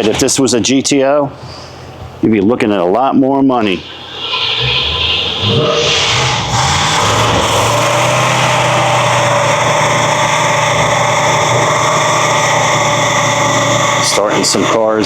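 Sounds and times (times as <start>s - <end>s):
car engine idling: 3.8s - 15.0s.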